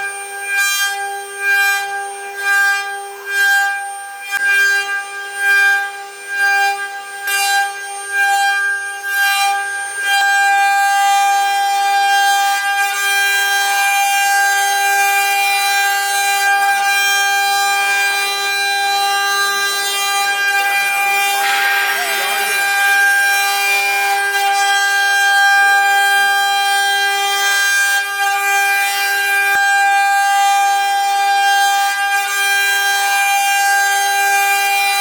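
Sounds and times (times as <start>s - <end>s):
machine spindle whine: 3.9s - 28.5s.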